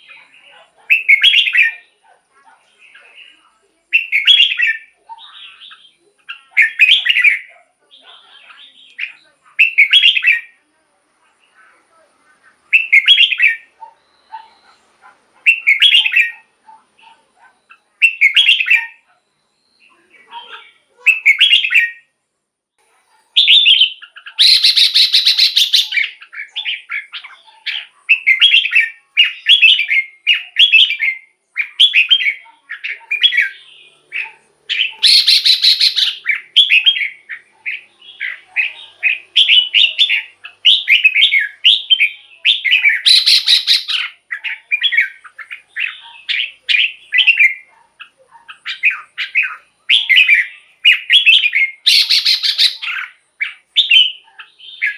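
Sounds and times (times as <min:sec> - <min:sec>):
bird singing bright phrases: 0:00.0 - 0:10.6, 0:11.4 - 0:22.2, 0:23.3 - 0:54.9
bird rasping chatter: 0:23.4 - 0:31.0, 0:31.6 - 0:54.9.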